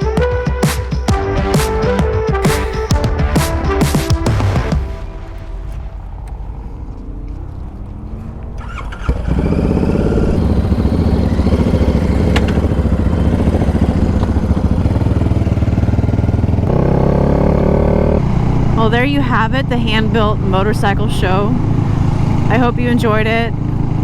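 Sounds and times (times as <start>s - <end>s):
motorcycle engine running: 8.6s - 24.0s.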